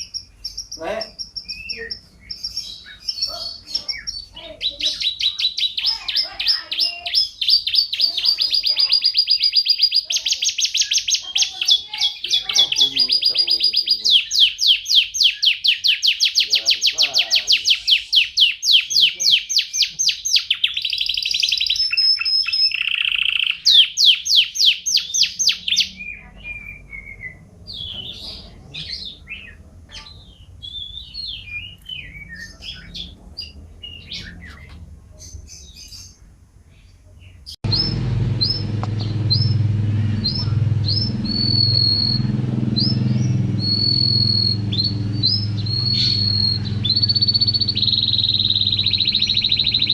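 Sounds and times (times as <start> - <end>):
canary trilling and twittering: 0.0 - 36.3, 37.2 - 49.9.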